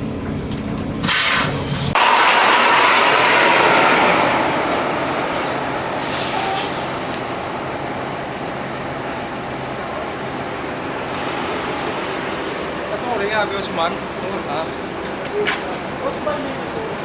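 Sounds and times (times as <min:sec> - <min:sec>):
bus road and engine noise: 0:00.0 - 0:17.0
loud air hiss: 0:01.0 - 0:07.4
brief high hiss: 0:01.1 - 0:02.0, 0:05.9 - 0:07.1.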